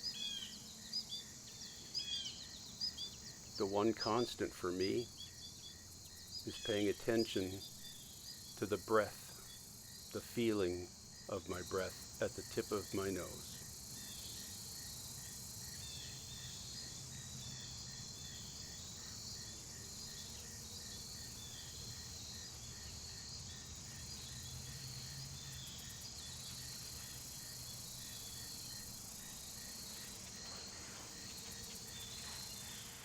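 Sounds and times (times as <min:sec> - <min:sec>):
crickets chirping drone: 0:00.0 - 0:33.0
soft repeating insect chirp: 0:00.0 - 0:33.0.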